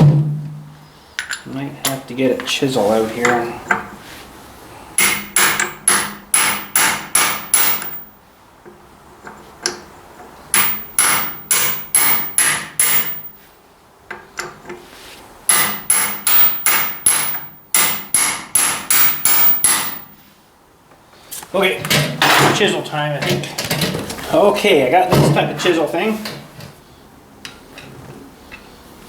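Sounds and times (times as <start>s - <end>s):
hammer striking metal: 5.0s - 8.1s, 10.6s - 13.4s, 15.5s - 20.2s.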